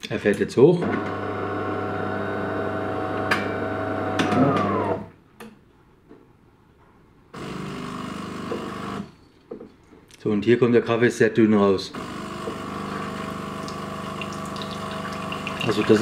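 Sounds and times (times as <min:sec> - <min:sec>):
coffee machine motor humming: 0:00.9 - 0:05.1, 0:07.4 - 0:09.0, 0:11.9 - 0:16.0
pump pushing water: 0:12.0 - 0:16.0.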